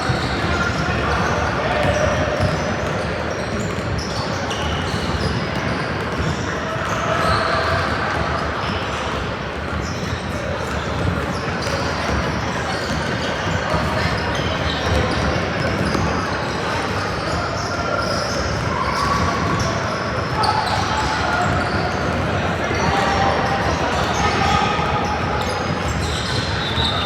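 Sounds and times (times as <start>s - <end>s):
murmur of voices echoing: 0.0s - 27.0s
sneaker squeaks: 0.0s - 27.0s
ball bouncing on hardwood court: 14.6s - 16.1s.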